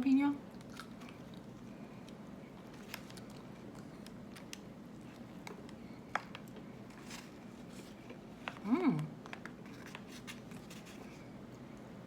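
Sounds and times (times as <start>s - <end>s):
steady low hum: 0.0s - 12.0s
person chewing: 0.6s - 2.2s.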